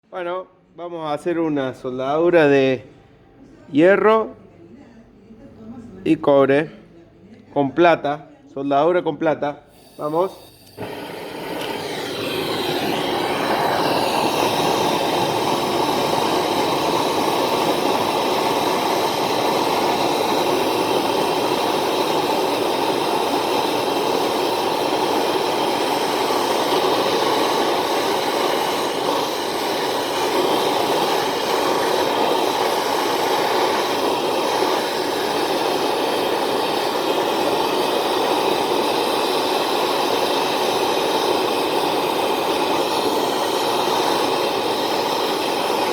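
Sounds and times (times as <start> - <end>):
torch flame hissing: 9.6 - 45.9.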